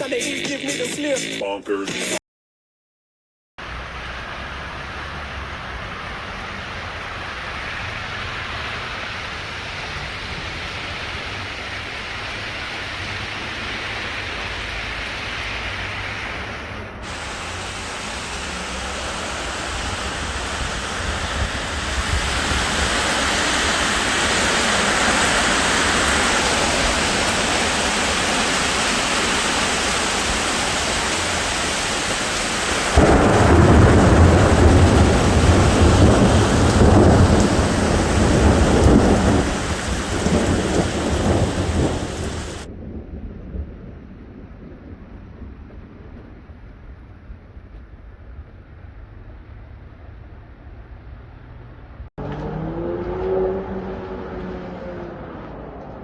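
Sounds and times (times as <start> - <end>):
heavy rain falling: 3.6 - 42.7.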